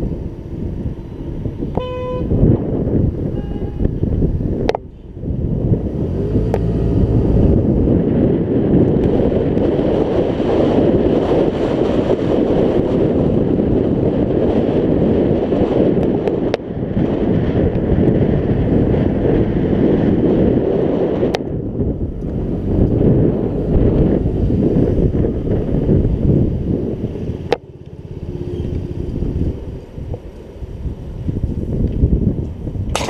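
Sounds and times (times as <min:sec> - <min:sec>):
wind buffeting microphone: 0:00.0 - 0:33.0
scooter engine: 0:26.8 - 0:31.1.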